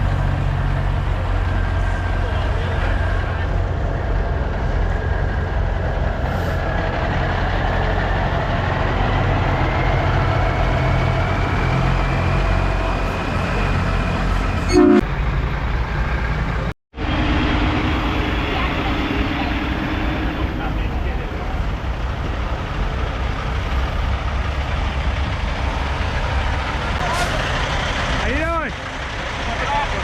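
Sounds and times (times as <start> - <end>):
diesel truck engine running: 0.0 - 30.0
truck horn toot: 14.7 - 15.1.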